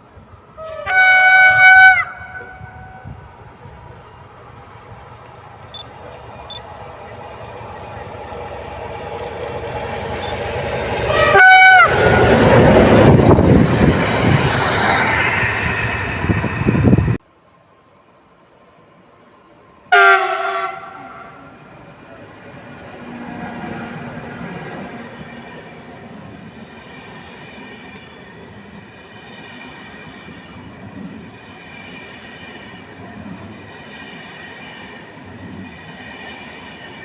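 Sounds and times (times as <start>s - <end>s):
low train rumble: 0.0s - 37.0s
train passing with rushing noise: 0.0s - 37.0s
train horn blast: 0.6s - 3.2s, 11.1s - 12.6s, 19.9s - 21.6s.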